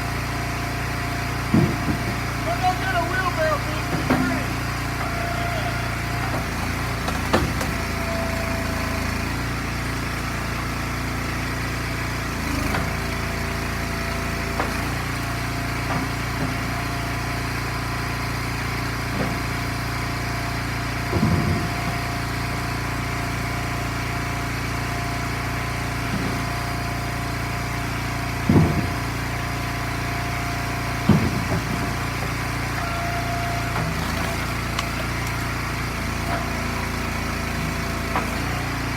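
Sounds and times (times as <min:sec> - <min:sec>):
log splitter engine running: 0:00.0 - 0:38.9
knocks and thumps: 0:01.5 - 0:02.2, 0:28.5 - 0:29.0, 0:31.1 - 0:31.9.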